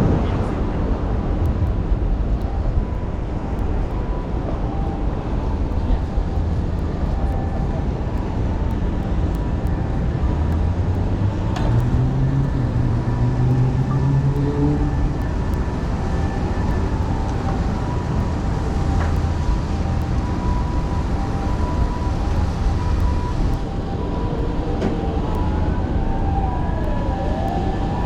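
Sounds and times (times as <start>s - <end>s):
low rumble of vehicle traffic: 0.0s - 28.0s
engine rising in pitch: 9.2s - 28.0s.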